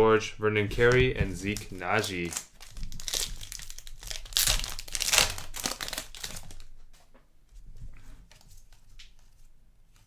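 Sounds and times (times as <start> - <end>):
cards rustling: 0.8 - 6.8
plastic wrapper crinkling and tearing: 0.8 - 6.9.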